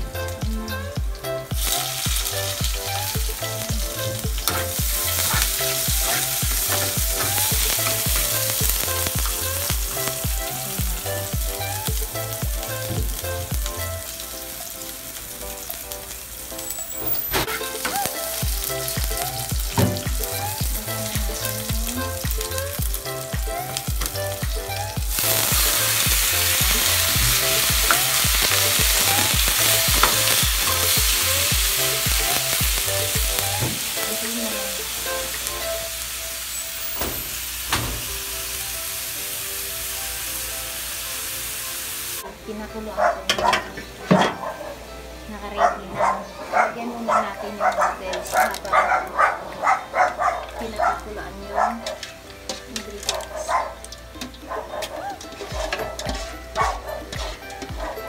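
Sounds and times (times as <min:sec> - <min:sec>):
onion sizzling in hot oil: 0:00.0 - 0:45.5, 0:46.7 - 0:58.0
spatula stirring in pan: 0:02.6 - 0:10.3, 0:51.5 - 0:58.0.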